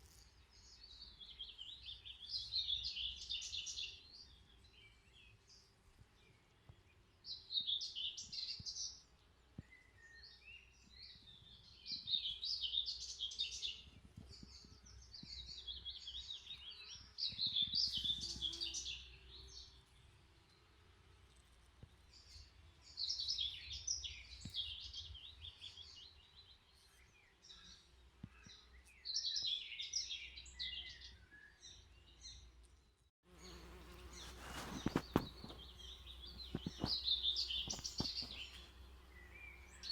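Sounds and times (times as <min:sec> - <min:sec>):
songbird singing trilled phrases: 0:33.4 - 0:39.9.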